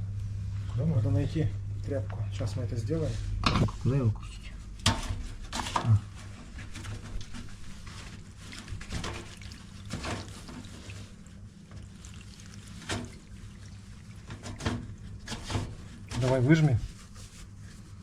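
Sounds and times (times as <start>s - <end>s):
water trickling from drain filter: 8.5s - 15.3s.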